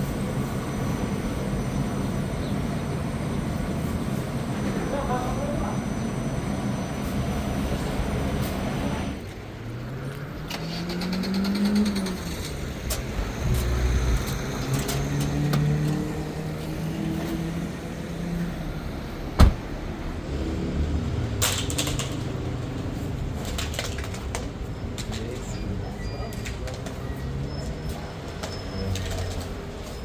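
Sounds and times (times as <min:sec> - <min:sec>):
engine running: 0:00.0 - 0:25.9
sharp knock: 0:19.4 - 0:19.6.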